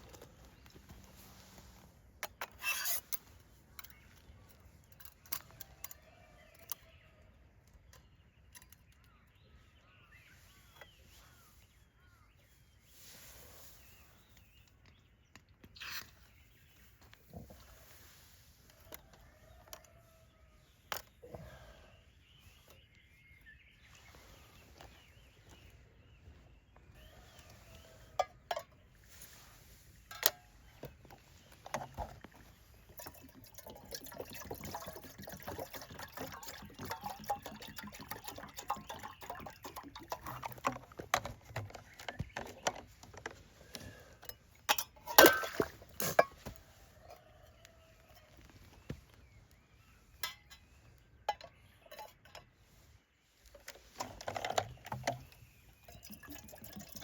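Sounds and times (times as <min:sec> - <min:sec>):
water being poured: 0:31.8 - 0:41.0, 0:45.1 - 0:46.2, 0:54.5 - 0:57.0
cookware clinking and knocking: 0:44.7 - 0:46.3.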